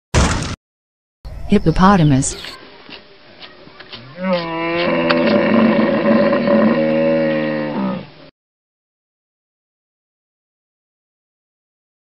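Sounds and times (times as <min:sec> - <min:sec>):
hippopotamus calling: 0:03.4 - 0:08.2.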